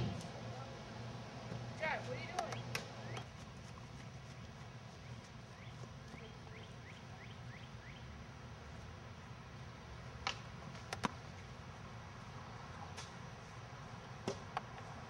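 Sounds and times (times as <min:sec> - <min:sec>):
low steady hum: 0:00.0 - 0:15.0
bird chirping: 0:05.0 - 0:08.1.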